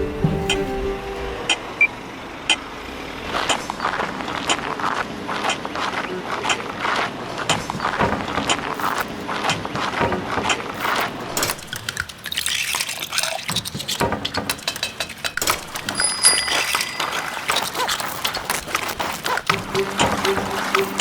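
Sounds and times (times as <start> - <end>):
liquid sloshing and dripping: 9.8 - 21.0
quick clicks and clinks: 11.0 - 20.3
short high ringing tone: 16.0 - 17.4.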